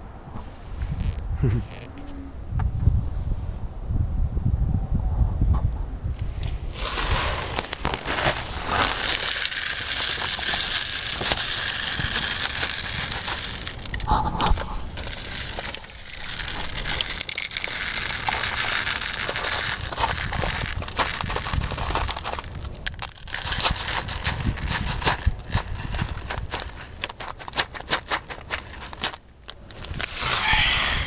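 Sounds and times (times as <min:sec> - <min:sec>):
footsteps crunching through snow: 0:06.7 - 0:16.8.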